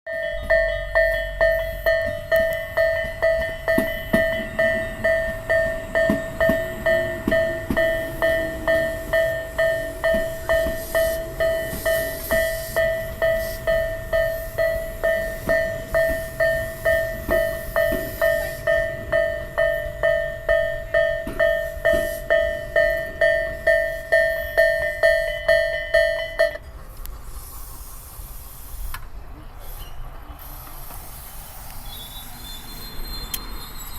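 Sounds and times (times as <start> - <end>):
level crossing warning bell: 0.1 - 26.8
train passing with wheel clicks: 0.1 - 33.9.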